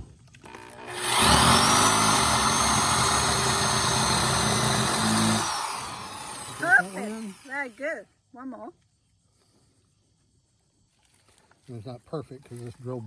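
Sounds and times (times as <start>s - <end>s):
power drill driving screw into wood: 0.3s - 7.8s.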